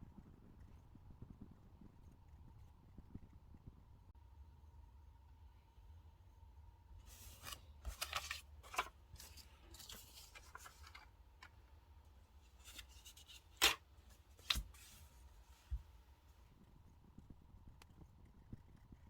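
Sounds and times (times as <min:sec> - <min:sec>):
paper and stickers rustling: 0:07.0 - 0:11.6, 0:12.4 - 0:15.9.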